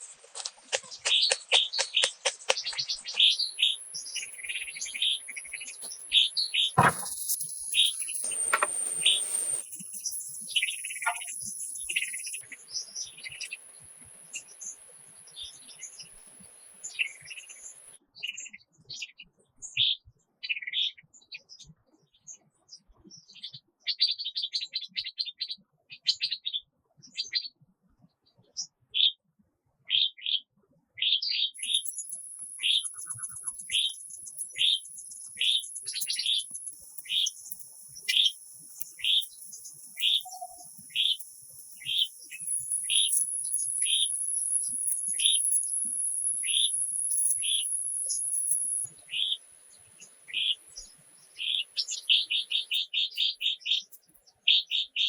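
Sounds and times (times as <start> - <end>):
small birds chirping: 0.4 - 18.6, 31.2 - 55.0
faint steady hiss: 3.2 - 18.0, 31.6 - 54.2
thin high-pitched tone: 3.4 - 12.5, 31.6 - 48.9
high-pitched whine: 3.5 - 12.4, 31.6 - 48.9.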